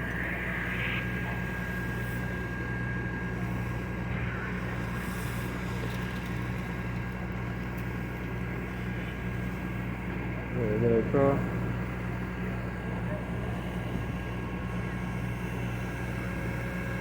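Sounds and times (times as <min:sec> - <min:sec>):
faint high whine: 0:00.0 - 0:07.2.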